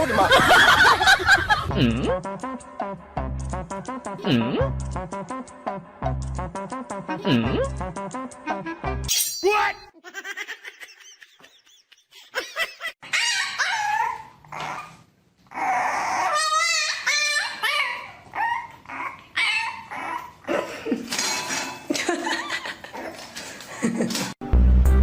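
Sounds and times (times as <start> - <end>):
dog whining and yipping: 13.0 - 20.4.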